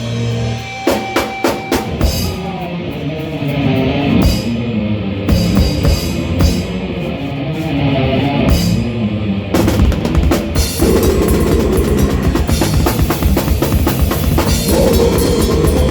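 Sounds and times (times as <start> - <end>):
drum kit playing: 0.0 - 2.7, 5.3 - 7.2, 8.5 - 8.9, 9.6 - 15.9
guitar and bass riff: 0.0 - 15.9.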